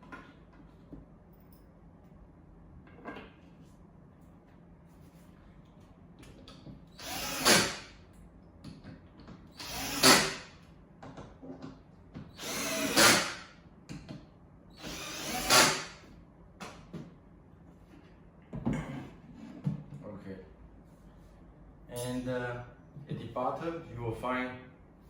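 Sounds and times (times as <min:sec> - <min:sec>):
power drill driving screws: 0:07.0 - 0:07.9, 0:09.6 - 0:10.5, 0:12.3 - 0:13.4, 0:14.8 - 0:16.0.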